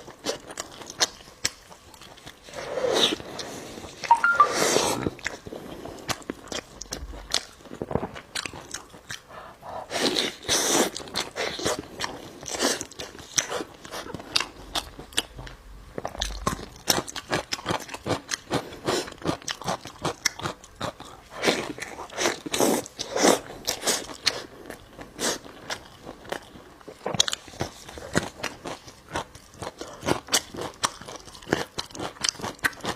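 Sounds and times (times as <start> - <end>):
crunchy food chewing: 0.0 - 4.0, 5.2 - 32.9
wet chewing clicks: 6.0 - 9.3, 10.0 - 24.8, 25.6 - 32.9.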